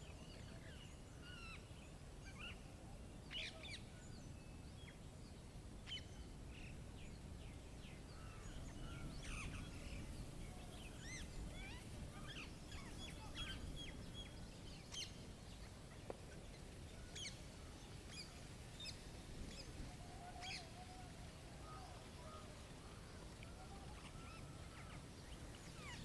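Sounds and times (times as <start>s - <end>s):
wild birds chirping: 5.8s - 19.0s, 21.6s - 26.0s.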